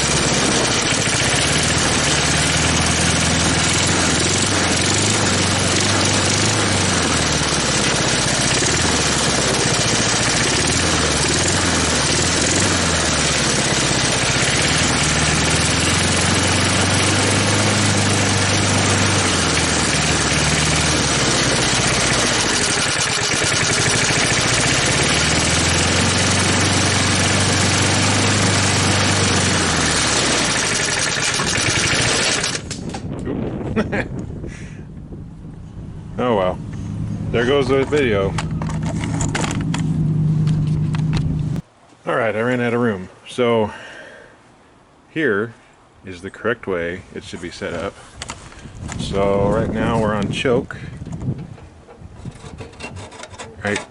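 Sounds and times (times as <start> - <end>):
lawn mower engine running: 0.0 - 33.2, 35.4 - 41.6.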